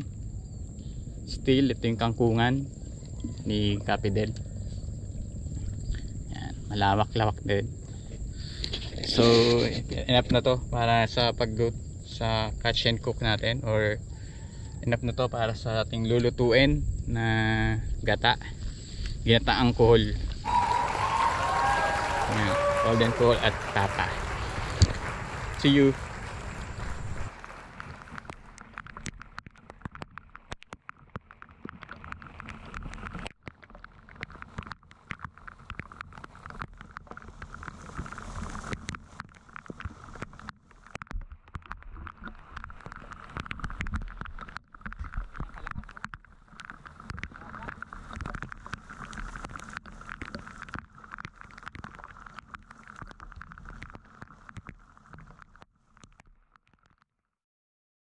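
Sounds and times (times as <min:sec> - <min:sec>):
rain hiss: 0:00.0 - 0:28.6, 0:37.3 - 0:38.7
wind rumbling on microphone: 0:00.0 - 0:30.2
raindrops ticking: 0:16.9 - 0:57.0.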